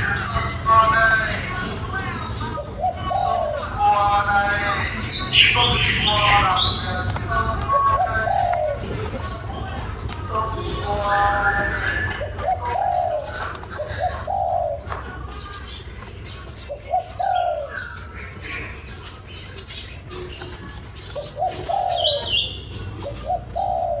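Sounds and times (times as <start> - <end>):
dove cooing: 0.0 - 24.0
small birds chirping: 0.0 - 24.0.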